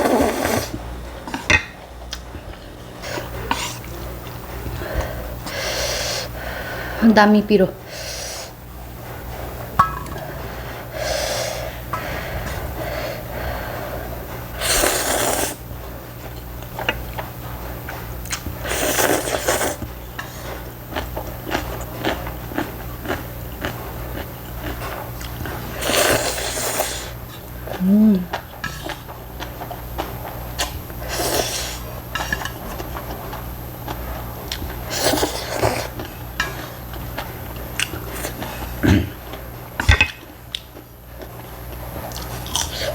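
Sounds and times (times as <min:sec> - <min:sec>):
slurping noodles: 0:00.0 - 0:00.8, 0:10.2 - 0:15.6, 0:18.3 - 0:20.7, 0:24.8 - 0:27.2, 0:30.6 - 0:32.5, 0:34.8 - 0:36.8
chewing: 0:16.2 - 0:39.5, 0:40.5 - 0:42.9.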